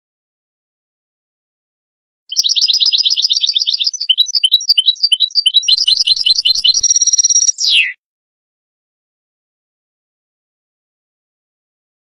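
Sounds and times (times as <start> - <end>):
goldfinch singing: 2.3 - 8.0.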